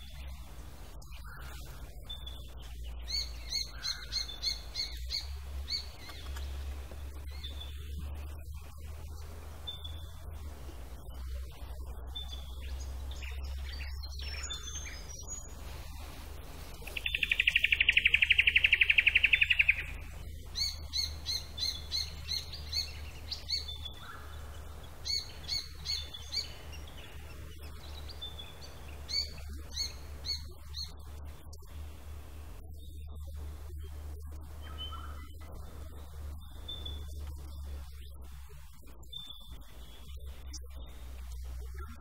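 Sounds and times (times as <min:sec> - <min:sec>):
sharp high bird chirps: 0:16.8 - 0:24.2
bird fast trill: 0:16.8 - 0:24.3.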